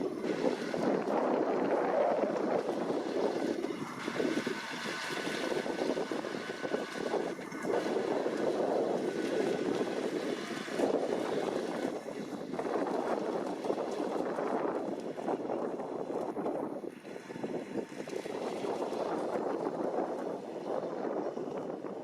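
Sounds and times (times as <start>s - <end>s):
hay tedder working: 0.0s - 15.5s
tractor running: 0.0s - 16.3s
wind noise on microphone: 0.0s - 22.0s.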